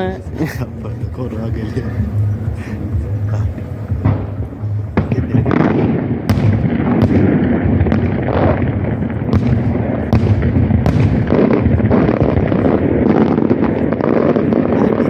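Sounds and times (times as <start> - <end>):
rumble of firework booms: 1.0 - 15.0
sharp firework bangs: 3.8 - 15.0.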